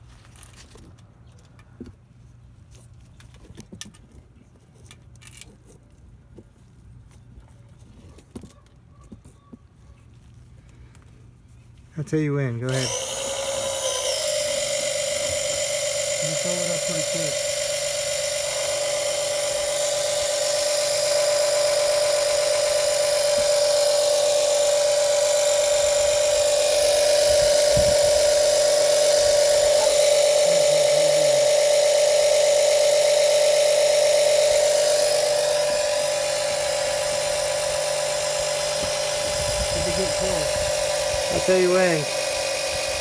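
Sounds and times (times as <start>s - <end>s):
small pump whining: 12.7s - 43.0s.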